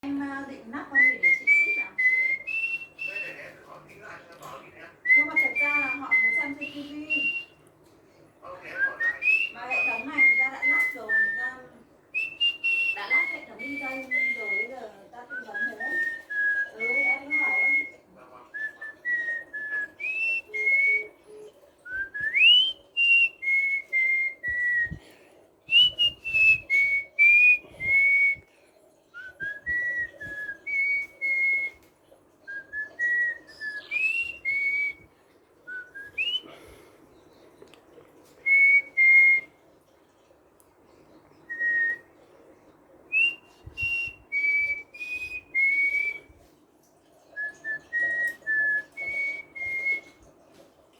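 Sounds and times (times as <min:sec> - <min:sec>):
cockatiel whistling a melody: 0:00.9 - 0:03.5, 0:05.0 - 0:07.6, 0:08.7 - 0:25.1, 0:25.7 - 0:28.5, 0:29.2 - 0:35.1, 0:35.7 - 0:36.8, 0:38.4 - 0:39.5, 0:41.4 - 0:42.1, 0:43.1 - 0:46.4, 0:47.4 - 0:50.2.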